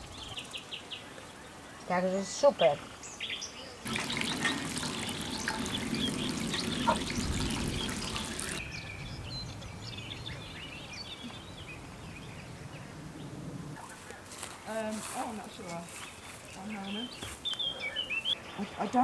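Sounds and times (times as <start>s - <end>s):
water running and splashing: 3.9s - 8.6s.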